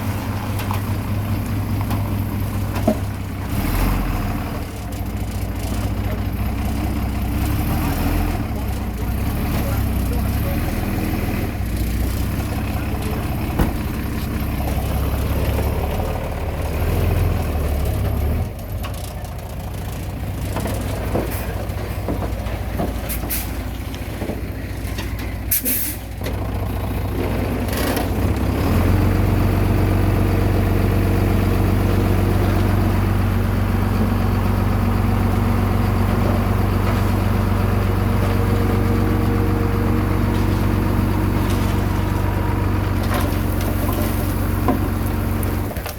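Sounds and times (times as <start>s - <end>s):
heavy diesel machinery engine: 0.0s - 45.9s
short sharp hisses: 25.5s - 26.1s.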